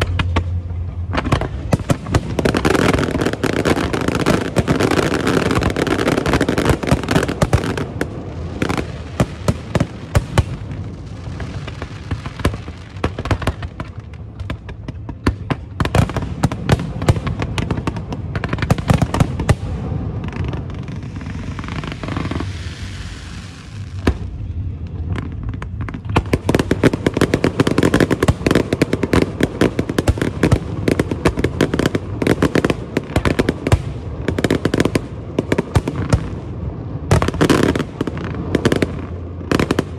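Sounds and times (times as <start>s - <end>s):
fireworks bangs: 0.0s - 39.9s
fireworks hissing: 18.5s - 24.4s.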